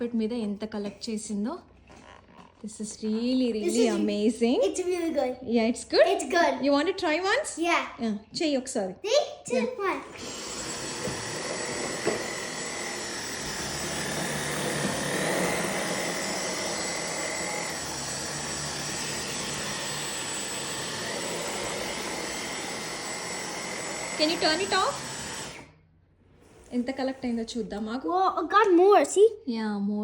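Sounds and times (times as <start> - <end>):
vacuum cleaner on carpet: 10.1 - 25.6.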